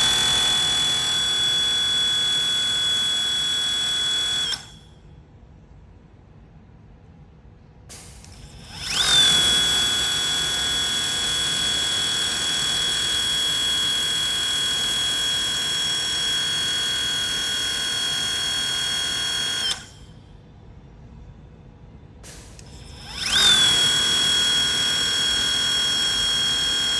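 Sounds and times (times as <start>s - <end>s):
pressure washer motor whine: 0.0s - 4.8s.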